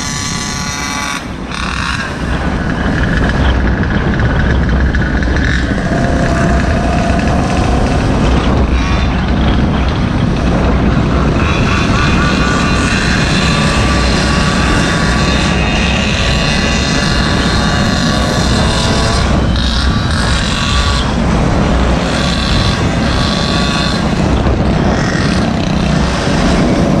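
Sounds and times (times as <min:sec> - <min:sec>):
high whine: 0:00.0 - 0:27.0
small gas engine running: 0:00.0 - 0:27.0
wind rumble on microphone: 0:00.0 - 0:27.0.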